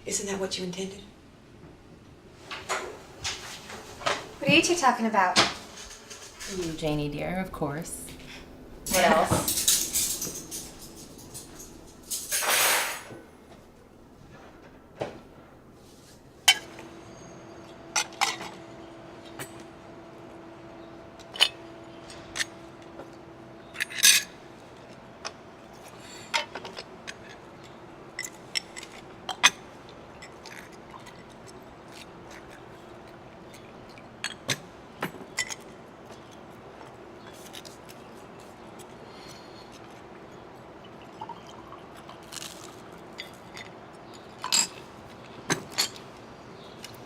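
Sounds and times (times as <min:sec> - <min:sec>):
faint steady hum: 0:00.0 - 0:47.0
teacups and spoons clinking: 0:05.8 - 0:13.7, 0:39.1 - 0:44.9.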